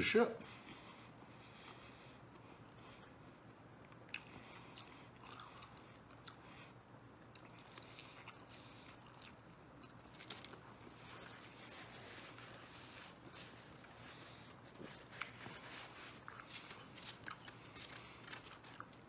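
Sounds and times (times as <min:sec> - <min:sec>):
biting and chewing pizza: 0:03.8 - 0:19.0.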